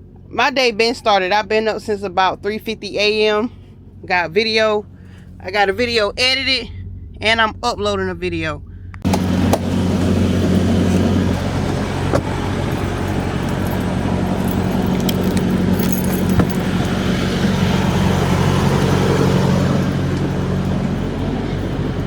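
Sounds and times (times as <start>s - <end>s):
diesel truck engine humming: 0.0s - 22.0s
light rattles: 10.4s - 22.0s.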